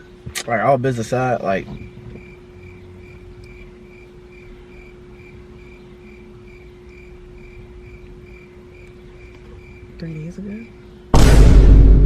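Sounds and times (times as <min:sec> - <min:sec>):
steady low hum: 0:00.0 - 0:12.0
faint high chirp pulsing: 0:01.5 - 0:11.1.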